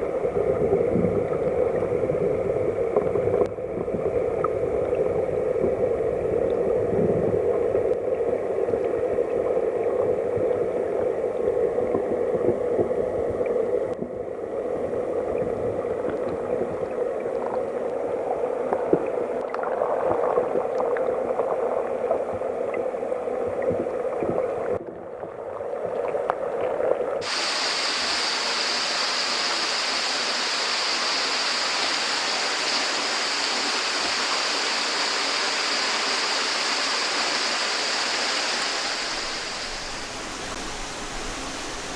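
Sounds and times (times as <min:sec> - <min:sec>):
stream heard underwater: 0:00.0 - 0:41.9
stream rushing: 0:27.2 - 0:41.9.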